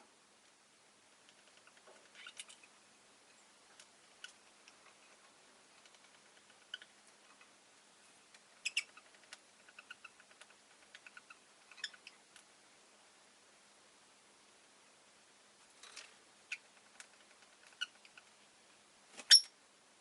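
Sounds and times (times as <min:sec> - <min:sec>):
lovebirds chirping and clicking: 0:01.3 - 0:02.7, 0:03.8 - 0:04.8, 0:05.8 - 0:07.5, 0:08.3 - 0:12.5, 0:16.5 - 0:18.3.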